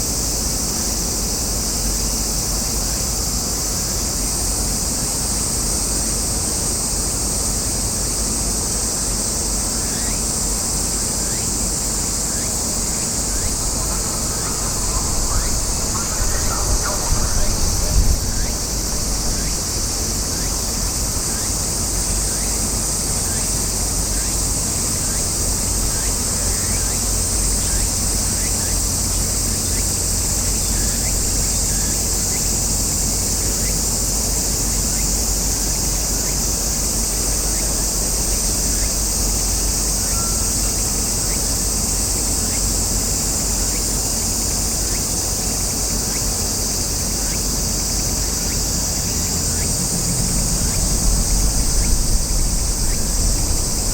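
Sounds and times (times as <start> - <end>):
cicadas chorus: 0.0 - 53.9
low steady rumble: 12.3 - 22.5, 48.0 - 53.9.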